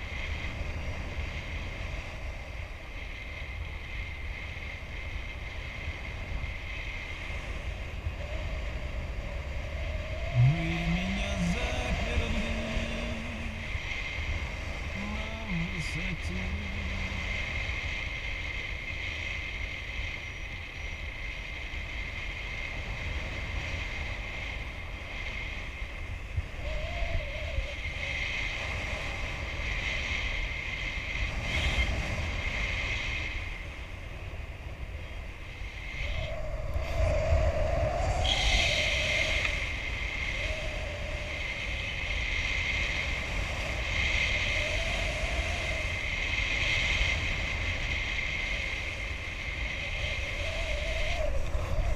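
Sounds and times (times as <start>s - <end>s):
wind buffeting microphone: 0.0s - 51.9s
faint wavering tone: 8.2s - 17.7s.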